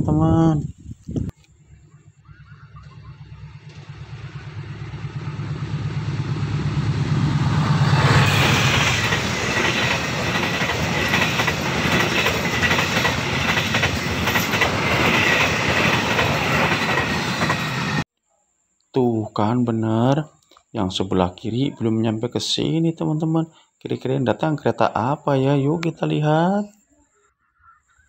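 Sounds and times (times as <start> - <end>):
diesel train engine rumble: 1.5 - 18.0
wheels clattering over rail joints: 2.8 - 5.9, 8.2 - 17.9.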